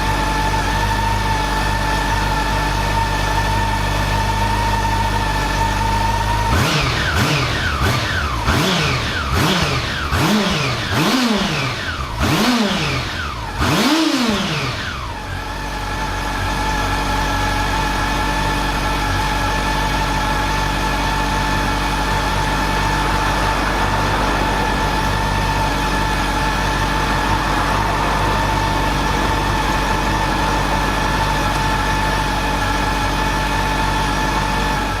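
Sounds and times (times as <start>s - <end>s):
motorcycle engine idling and revving: 0.0s - 35.0s.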